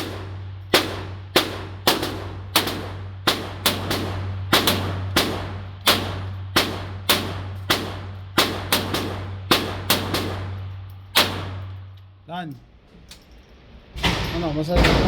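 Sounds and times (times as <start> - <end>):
pistol shots echoing: 0.0 - 11.8
steady low hum: 0.0 - 15.0.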